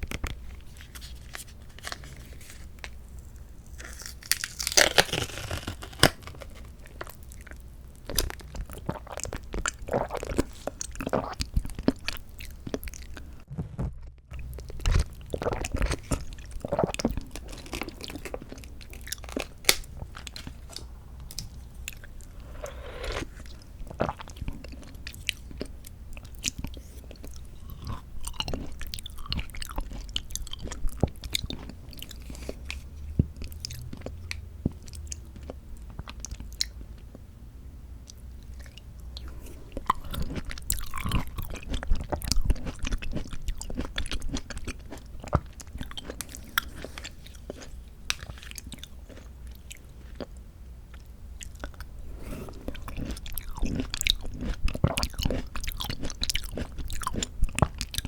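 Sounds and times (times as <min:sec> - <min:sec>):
close chewing of soft fruit: 0:00.0 - 0:37.3, 0:38.0 - 0:58.0.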